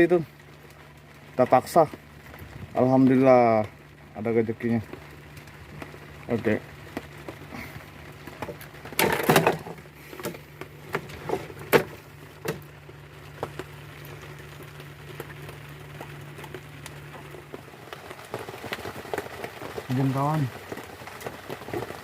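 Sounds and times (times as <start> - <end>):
knocks and clatters: 8.4 - 12.6.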